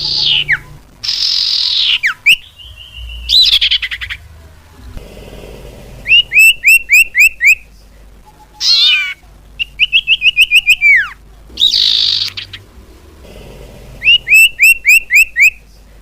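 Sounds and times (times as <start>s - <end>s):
harsh rasping bird note: 5.0s - 7.6s, 11.5s - 15.6s
bird whistling calls: 6.0s - 7.6s, 8.6s - 12.6s, 14.0s - 15.6s.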